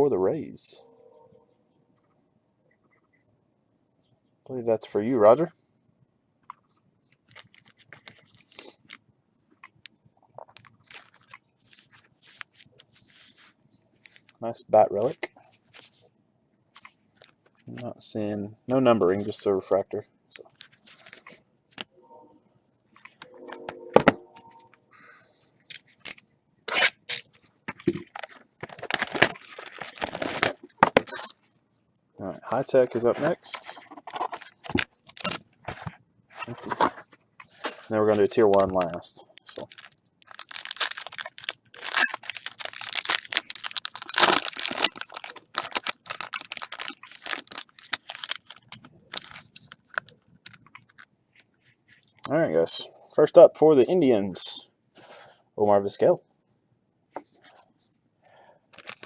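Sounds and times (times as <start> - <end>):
packaging clicks and rustles: 7.2 - 9.0, 10.4 - 13.0, 27.8 - 31.4, 33.2 - 51.5, 58.7 - 59.0
packaging tearing and crinkling: 28.0 - 31.4, 34.3 - 35.4, 38.6 - 51.1, 58.7 - 59.0.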